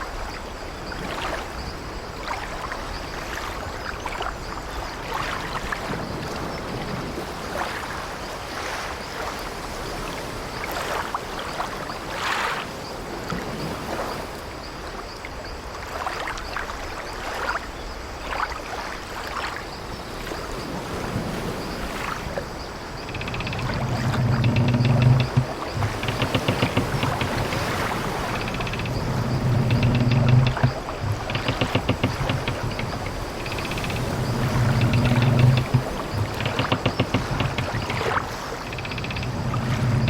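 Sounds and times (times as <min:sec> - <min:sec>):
sea waves washing against ship: 0:00.0 - 0:40.0
ship timbers creaking: 0:22.9 - 0:40.0.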